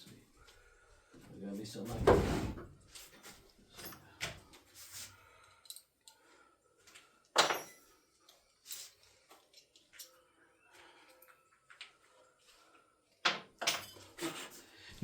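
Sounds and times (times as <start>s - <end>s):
metal tools clinking: 3.7s - 4.2s, 7.3s - 10.2s, 13.6s - 14.6s.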